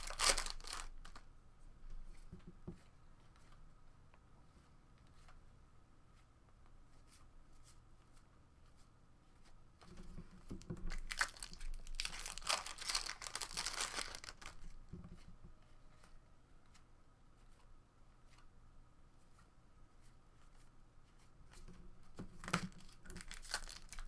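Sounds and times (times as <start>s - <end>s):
wrapper tearing and crinkling: 0.0s - 1.2s, 10.9s - 14.7s, 22.4s - 24.0s.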